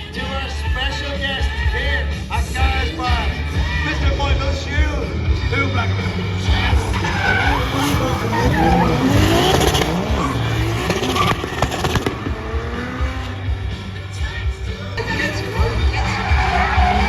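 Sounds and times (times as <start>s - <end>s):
car engines revving: 0.0s - 17.0s
tyres squealing: 5.9s - 13.4s.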